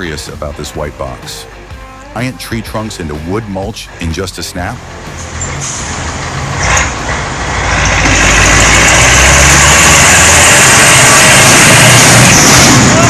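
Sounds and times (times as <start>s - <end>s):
diesel machinery humming: 4.6s - 13.0s
harsh even noise: 5.2s - 13.0s.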